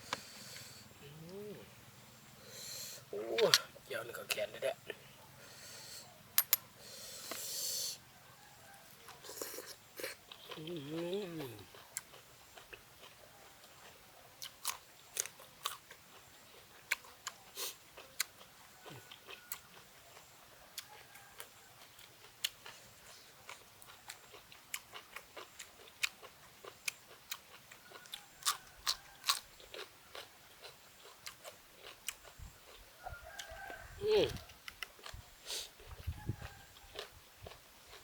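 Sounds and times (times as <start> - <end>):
person chewing crunchy food: 9.0 - 38.0.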